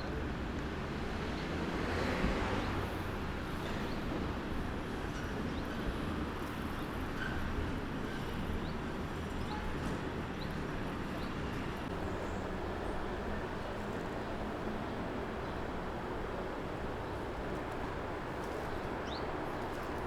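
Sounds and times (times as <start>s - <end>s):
distant traffic: 11.9s - 20.0s.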